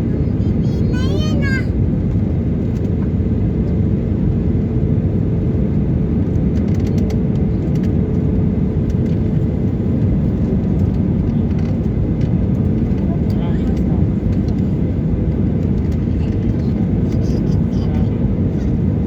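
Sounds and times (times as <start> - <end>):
airliner landing rumble: 0.0 - 19.0.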